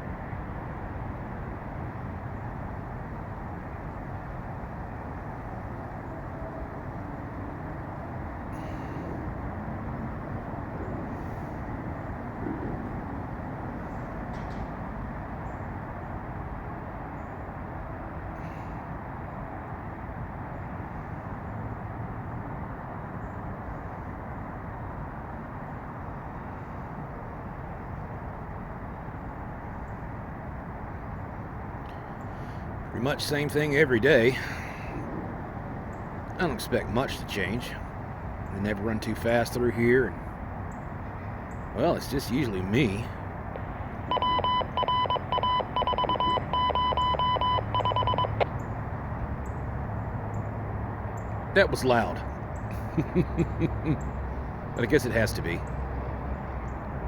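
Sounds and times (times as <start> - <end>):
high pitched electronic beeping: 44.1 - 48.5.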